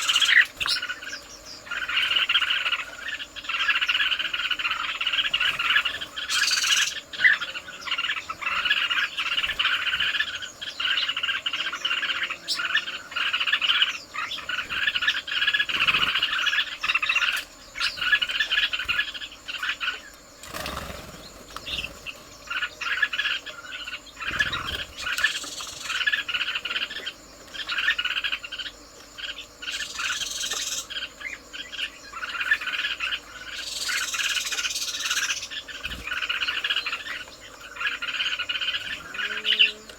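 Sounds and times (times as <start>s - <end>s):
high bright bird calls: 0.0s - 19.8s
birds chirping: 0.0s - 39.9s
insects chirping: 0.0s - 39.9s.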